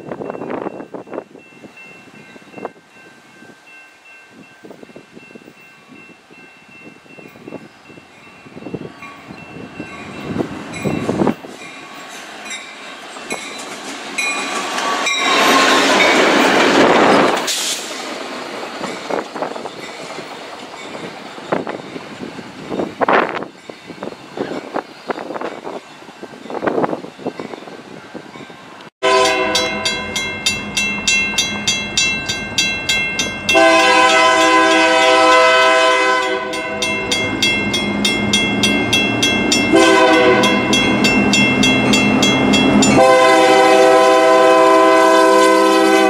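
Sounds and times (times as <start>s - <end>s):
crossing bell ringing: 0.0s - 17.5s, 18.5s - 46.0s
diesel locomotives rushing past: 8.2s - 46.0s
rail noise bursts: 8.6s - 27.0s.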